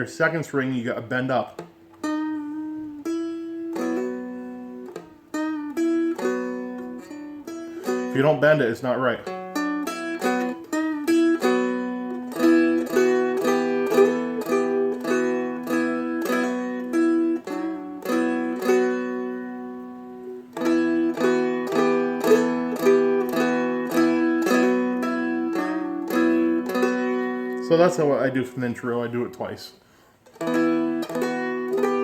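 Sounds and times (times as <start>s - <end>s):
dulcimer melody with drone strings: 9.6s - 27.8s, 30.4s - 32.0s.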